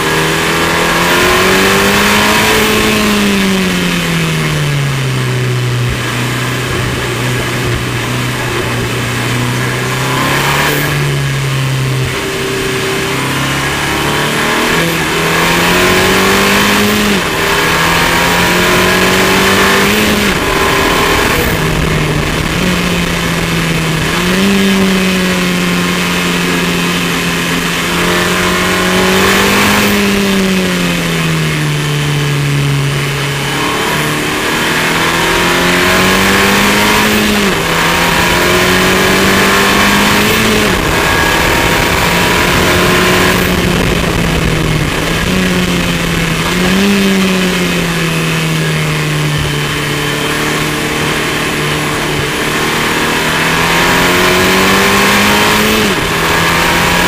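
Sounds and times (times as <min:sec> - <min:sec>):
car engine changing gears: 0:00.0 - 0:57.0
wind rushing: 0:37.7 - 0:48.3.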